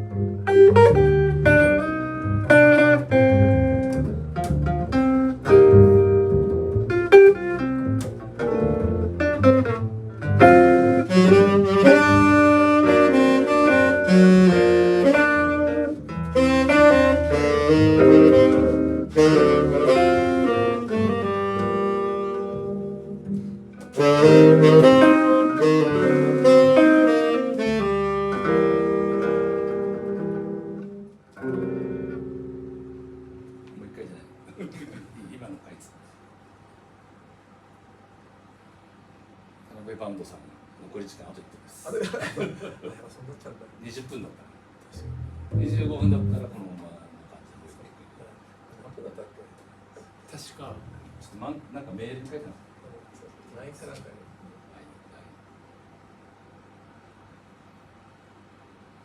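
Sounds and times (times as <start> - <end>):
band playing jazz: 0.0 - 32.6, 45.0 - 46.6.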